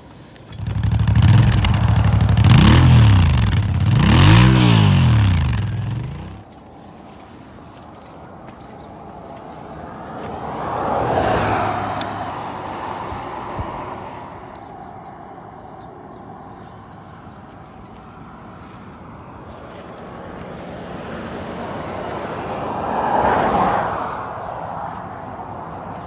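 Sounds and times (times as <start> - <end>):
motorcycle passing by: 0.5 - 6.5, 9.6 - 14.8, 19.7 - 26.0.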